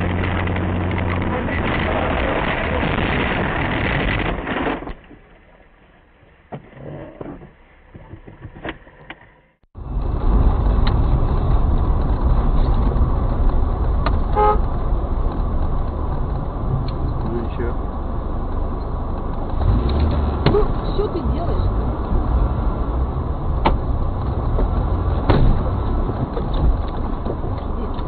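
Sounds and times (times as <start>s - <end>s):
traffic road and engine noise: 0.0s - 5.2s, 6.5s - 28.0s
car horn honk: 14.4s - 14.7s.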